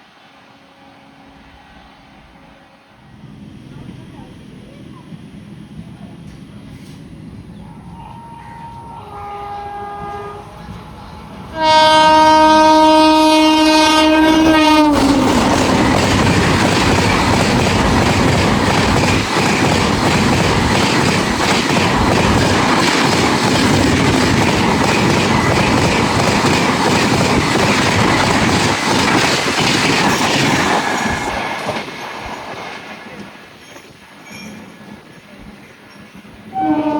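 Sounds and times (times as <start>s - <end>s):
train horn blast: 7.9s - 15.5s, 36.5s - 36.9s
train wheels clattering and rumbling: 14.3s - 36.5s.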